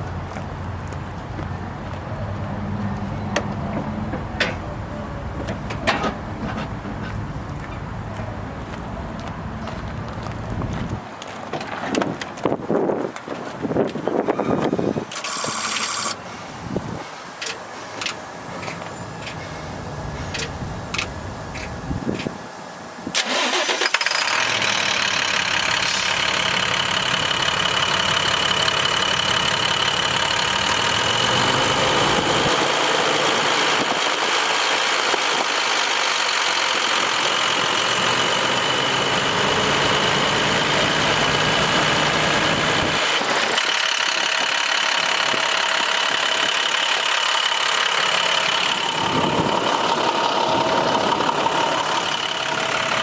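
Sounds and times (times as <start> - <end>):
diesel engine idling: 12.4 - 53.0.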